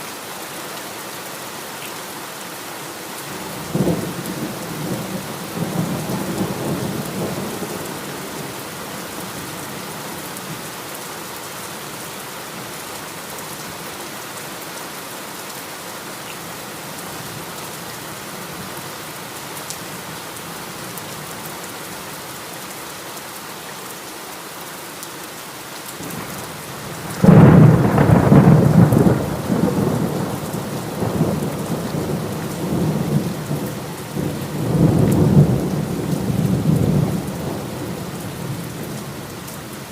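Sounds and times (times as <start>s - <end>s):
heavy rain: 0.0s - 39.9s
thunder rumbling: 26.9s - 38.7s
loud thunderclap: 27.1s - 33.3s.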